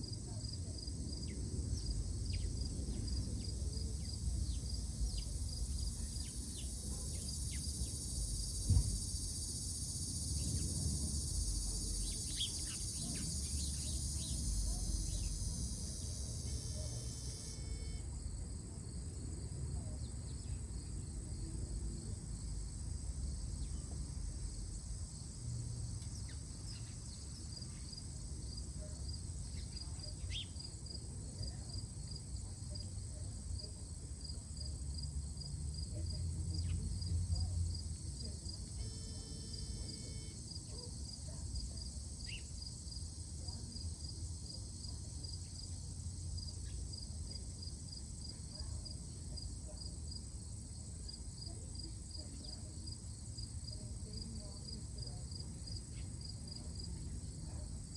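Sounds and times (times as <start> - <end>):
pulsed cricket-like chirping: 0.0 - 18.4, 22.4 - 57.9
insects buzzing: 1.2 - 18.1, 36.6 - 48.4.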